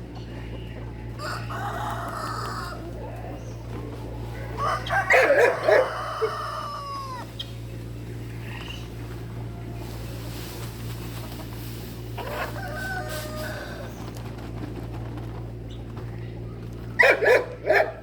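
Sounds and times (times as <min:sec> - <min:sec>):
steady low hum: 0:00.0 - 0:18.0
rooster crowing: 0:01.2 - 0:02.9, 0:04.5 - 0:07.3, 0:12.2 - 0:14.1.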